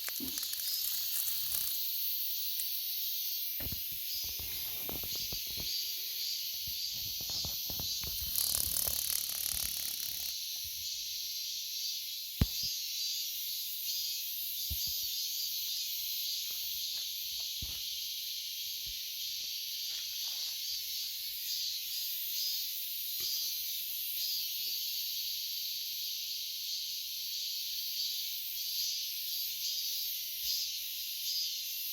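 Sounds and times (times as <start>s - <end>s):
cicadas buzzing: 0.0s - 31.9s
sharp click: 12.4s - 12.7s.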